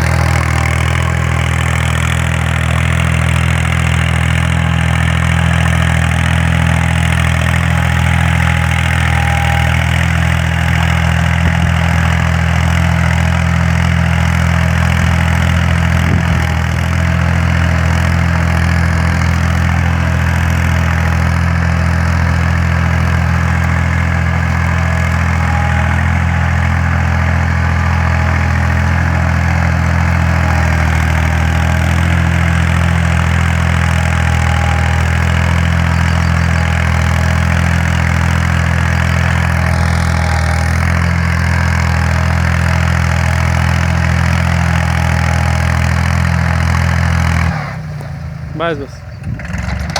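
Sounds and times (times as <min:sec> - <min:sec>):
tractor diesel engine droning: 0:00.0 - 0:49.9.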